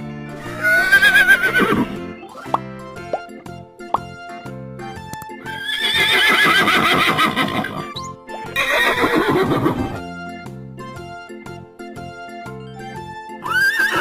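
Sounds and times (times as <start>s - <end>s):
background music: 0.0s - 14.0s
horse whinnying: 0.4s - 2.0s, 5.4s - 10.0s, 13.4s - 14.0s.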